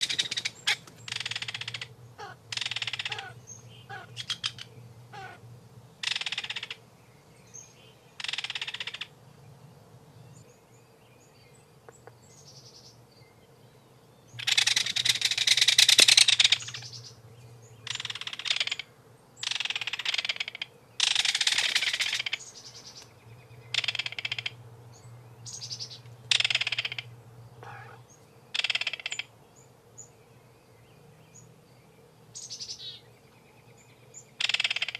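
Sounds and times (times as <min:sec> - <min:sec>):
kingfisher harsh rattling calls: 0:00.0 - 0:05.4, 0:06.0 - 0:06.8, 0:08.2 - 0:09.1, 0:14.4 - 0:16.9, 0:17.9 - 0:18.8, 0:19.4 - 0:22.4, 0:23.7 - 0:24.6, 0:26.3 - 0:27.1, 0:28.6 - 0:29.3, 0:34.4 - 0:34.9
faint low hum: 0:00.0 - 0:08.2, 0:09.0 - 0:19.5, 0:21.6 - 0:34.4.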